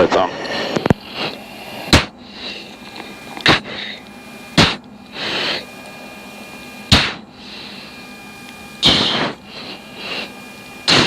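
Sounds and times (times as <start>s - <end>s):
cockpit hum: 0.0s - 11.0s
pilot breathing into mask microphone: 0.3s - 4.1s, 7.3s - 8.0s.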